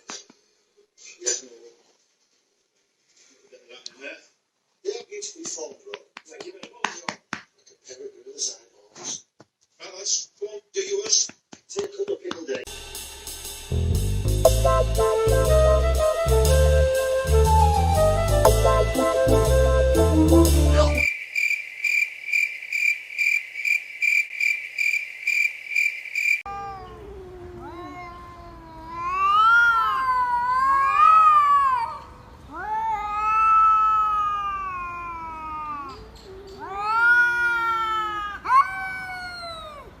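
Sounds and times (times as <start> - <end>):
cat meowing: 26.5 - 40.0.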